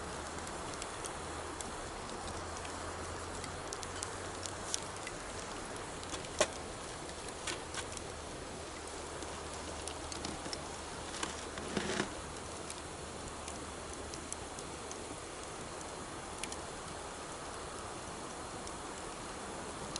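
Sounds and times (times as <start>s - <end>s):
campfire crackling and popping: 0.0s - 19.9s.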